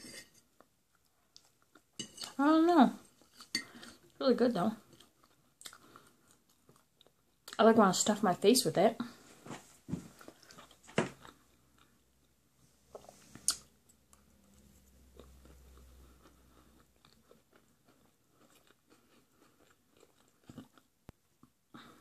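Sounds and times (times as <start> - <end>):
person chewing food: 0.4 - 2.4, 3.1 - 4.2, 4.8 - 7.6, 10.1 - 22.0.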